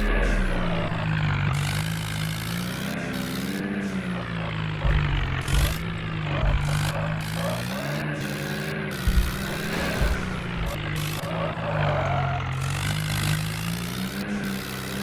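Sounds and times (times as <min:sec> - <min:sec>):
tractor engine running: 0:00.0 - 0:15.0
low thumps: 0:04.7 - 0:07.6, 0:08.9 - 0:11.4.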